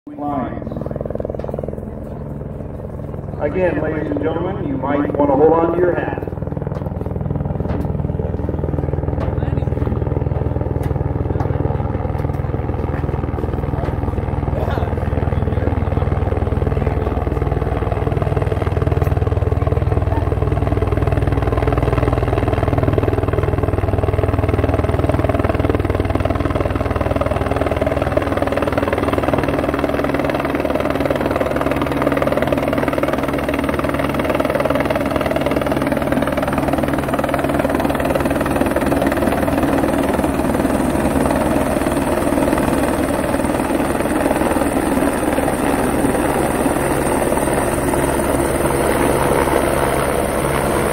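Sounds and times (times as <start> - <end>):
helicopter rotor and turbine: 0.1 - 50.9.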